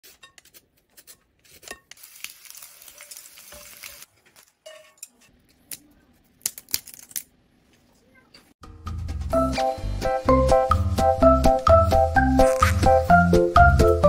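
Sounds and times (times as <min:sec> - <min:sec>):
potato slices sizzling in oil: 0:01.9 - 0:04.1.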